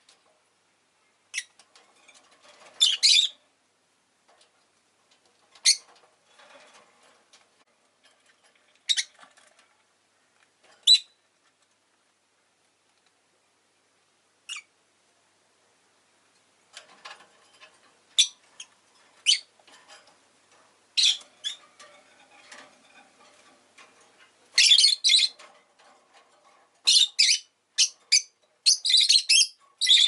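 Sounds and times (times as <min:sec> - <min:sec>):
lovebird chirping: 0:02.8 - 0:03.4, 0:08.9 - 0:09.1, 0:10.8 - 0:11.2, 0:14.5 - 0:14.7, 0:19.2 - 0:19.5, 0:21.0 - 0:21.6, 0:24.6 - 0:25.4, 0:26.9 - 0:30.0.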